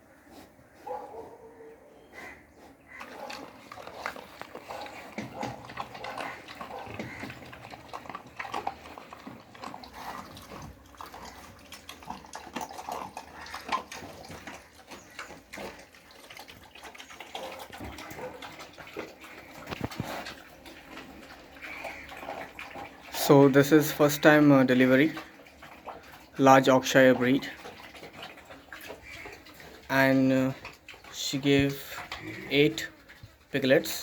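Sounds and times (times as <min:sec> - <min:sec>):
piglets squealing and grunting: 0:02.1 - 0:23.2, 0:27.6 - 0:33.5.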